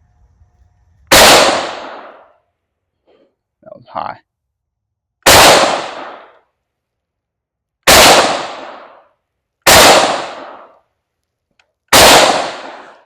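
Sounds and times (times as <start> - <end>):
rifle shots: 1.1 - 2.3, 5.2 - 6.4, 7.8 - 10.8, 11.9 - 13.0.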